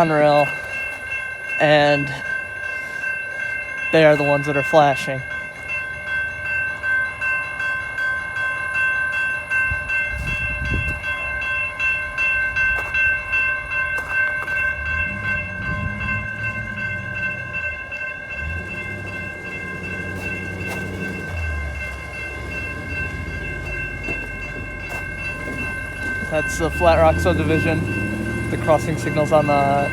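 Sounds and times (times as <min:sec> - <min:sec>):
railroad crossing bell ringing: 0:00.0 - 0:29.9
low rumble: 0:14.6 - 0:26.4.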